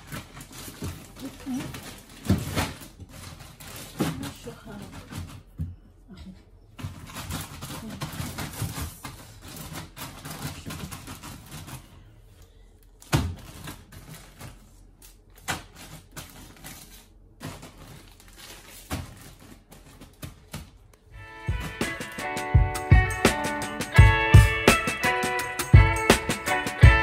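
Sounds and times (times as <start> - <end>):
plastic bags rustling: 0.0 - 5.5, 6.8 - 12.3, 12.9 - 22.4.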